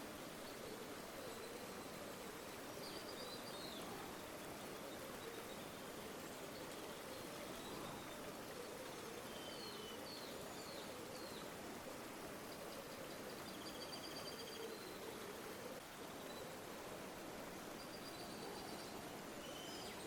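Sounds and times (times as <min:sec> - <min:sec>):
river water flowing: 0:00.0 - 0:20.0.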